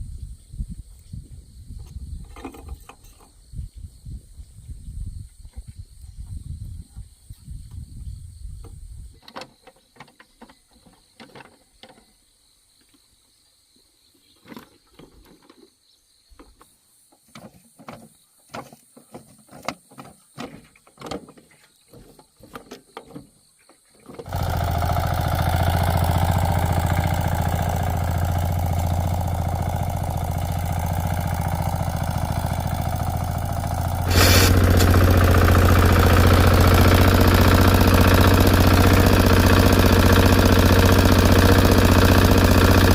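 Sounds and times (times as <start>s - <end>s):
small engine running: 24.2s - 42.9s.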